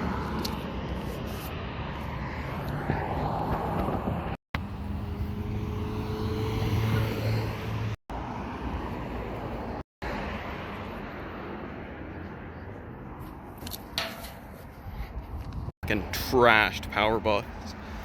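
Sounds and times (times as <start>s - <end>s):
motor vehicles passing: 0.0s - 18.0s.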